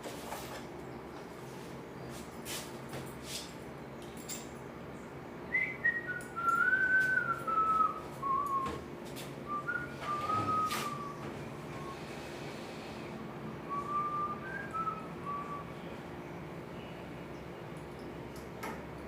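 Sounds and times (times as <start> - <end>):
person whistling a slow tune: 5.5 - 8.8, 9.5 - 11.2, 13.7 - 15.7.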